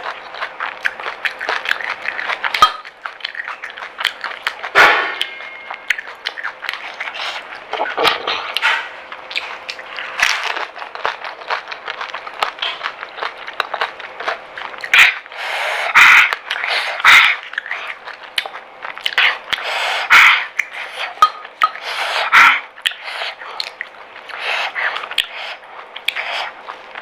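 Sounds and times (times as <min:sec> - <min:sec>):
wet chewing: 0:00.0 - 0:27.0
crisp shells crunching: 0:09.4 - 0:15.3.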